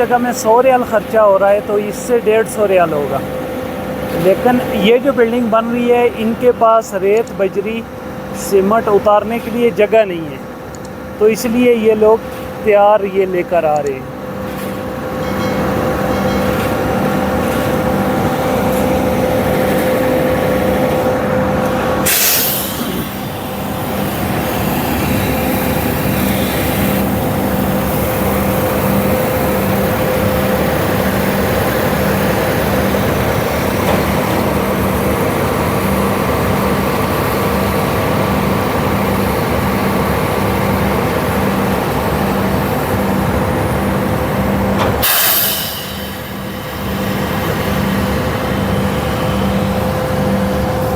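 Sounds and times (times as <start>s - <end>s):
diesel truck engine running: 0.0s - 45.1s
air release hiss: 22.0s - 27.1s, 44.9s - 47.2s.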